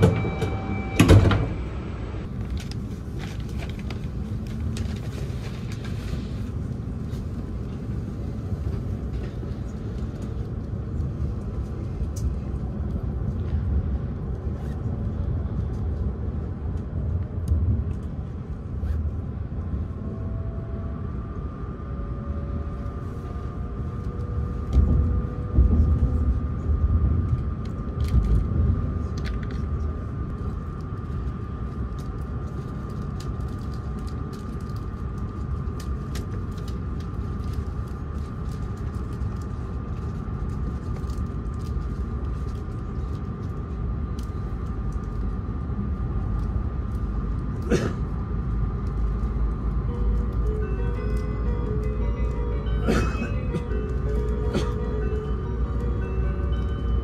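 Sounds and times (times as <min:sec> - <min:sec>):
faint whine: 0:00.0 - 0:57.0
train running rumble: 0:00.0 - 0:57.0.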